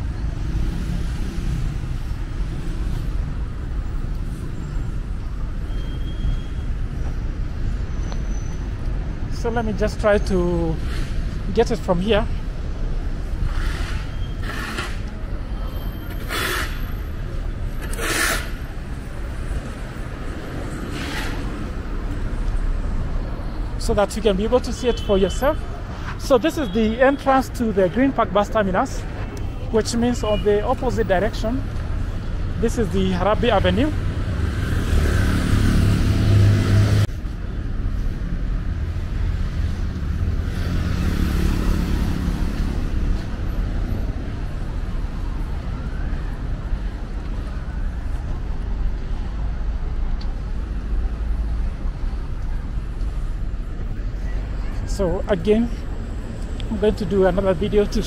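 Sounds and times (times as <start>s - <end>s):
traffic low rumble: 0.0s - 58.0s
short hissing swells of passing cars: 16.2s - 17.0s
vehicle passing: 33.4s - 37.1s.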